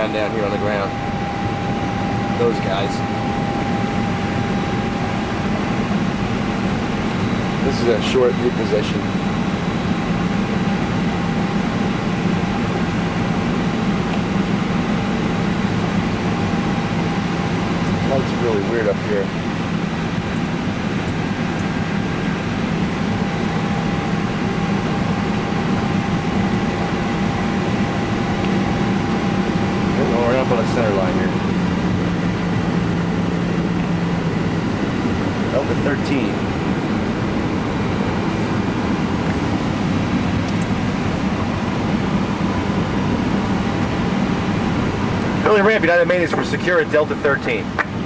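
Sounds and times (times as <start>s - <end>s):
low rumble: 0.0s - 12.7s
air conditioning rushing noise: 0.0s - 48.0s
thin steady whine: 0.0s - 48.0s.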